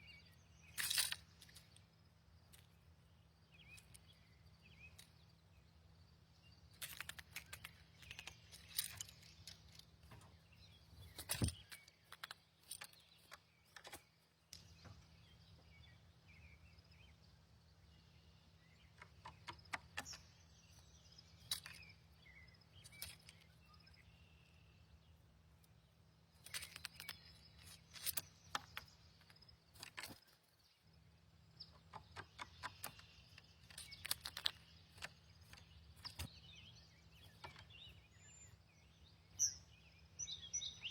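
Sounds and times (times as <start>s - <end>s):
faint bird chirps: 0.0s - 40.9s
small birds clicking and tapping: 0.1s - 40.9s.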